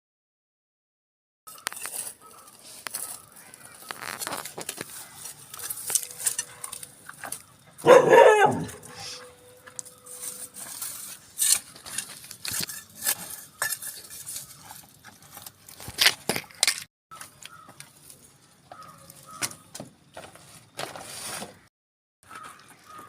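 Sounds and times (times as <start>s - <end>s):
hard objects clinking and scraping: 1.5s - 8.0s, 8.6s - 19.6s.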